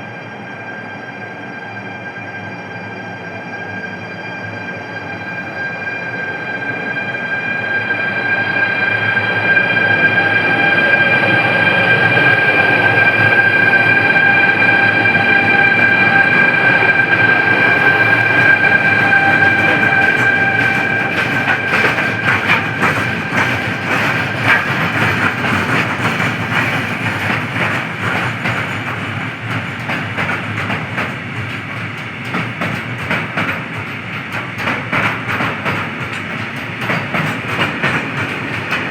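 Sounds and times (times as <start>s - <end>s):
train high whine: 0.0s - 38.9s
train wheels clattering over rail joints: 16.1s - 38.9s.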